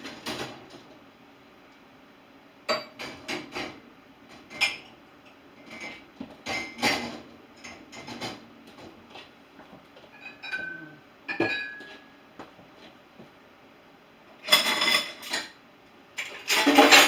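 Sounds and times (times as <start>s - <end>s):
dishes and cutlery clinking: 5.6s - 9.3s, 10.1s - 12.2s, 14.4s - 15.6s, 16.2s - 17.0s.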